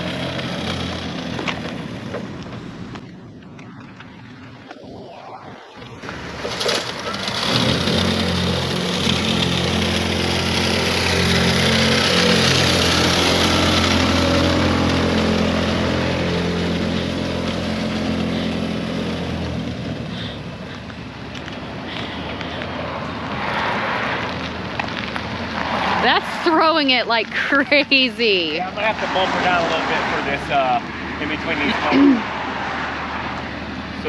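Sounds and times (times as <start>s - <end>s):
truck engine droning: 0.0s - 32.3s
salt spreader hissing: 6.2s - 20.8s.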